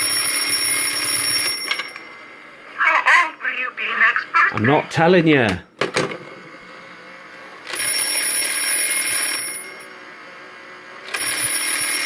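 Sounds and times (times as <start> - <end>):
toy telephone bell ringing: 0.0 - 2.2, 7.7 - 9.9, 11.1 - 12.0.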